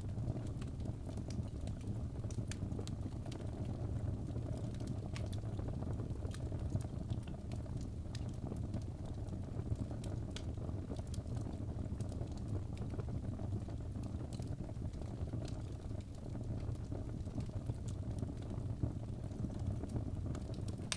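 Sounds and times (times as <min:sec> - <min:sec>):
low rumble of flames: 0:00.0 - 0:20.9
burning wood crackling: 0:17.4 - 0:20.9.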